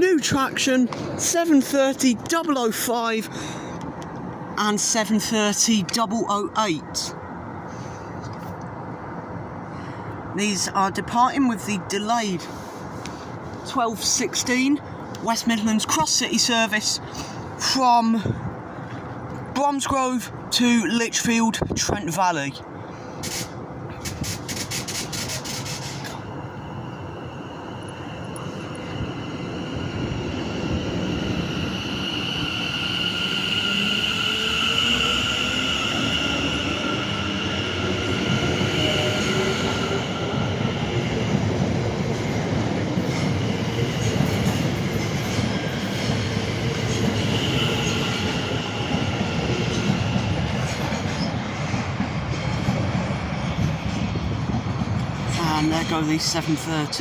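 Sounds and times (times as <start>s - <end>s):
high steady squeal: 24.8s - 40.2s.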